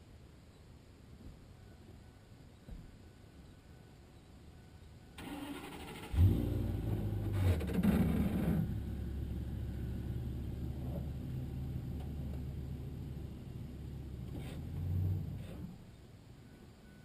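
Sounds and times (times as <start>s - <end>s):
engine starting and idling: 5.2s - 9.0s.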